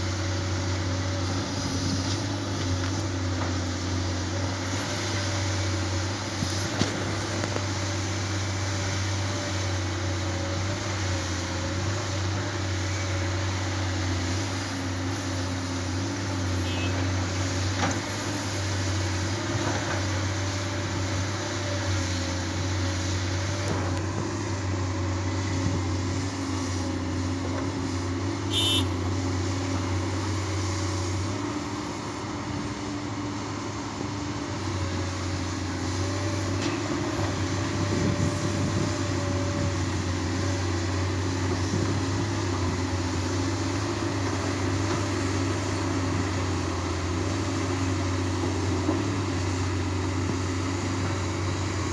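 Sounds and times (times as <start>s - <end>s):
heavy vehicle engine rumbling: 0.0s - 51.9s.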